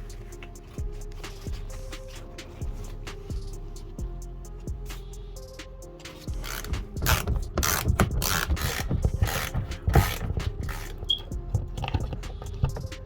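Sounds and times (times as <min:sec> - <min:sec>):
background music: 0:00.0 - 0:13.0
ratchet wrench clicking: 0:06.3 - 0:12.9.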